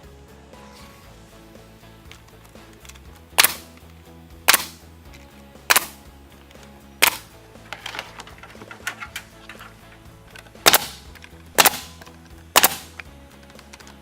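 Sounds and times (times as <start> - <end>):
background music: 0.0 - 14.0
nail gun firing: 3.4 - 3.8, 4.5 - 4.8, 5.7 - 6.0, 7.0 - 9.8, 10.6 - 13.1.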